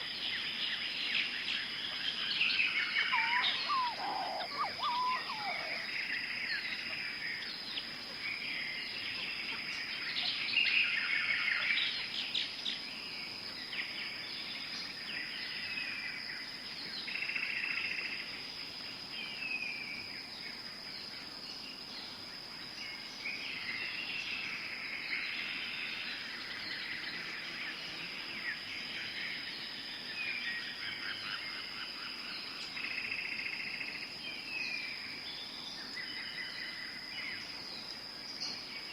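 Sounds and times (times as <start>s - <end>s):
birds calling and chirping: 0.0s - 12.8s.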